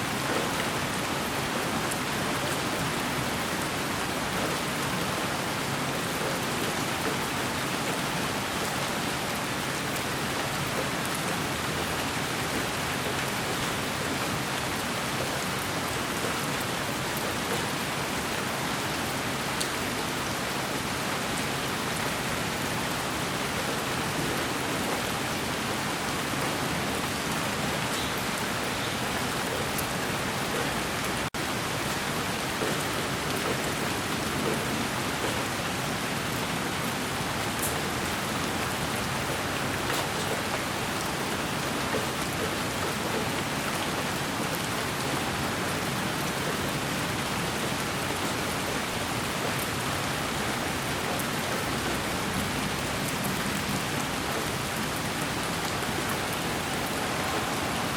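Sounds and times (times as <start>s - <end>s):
white noise hiss: 55.8s - 57.9s.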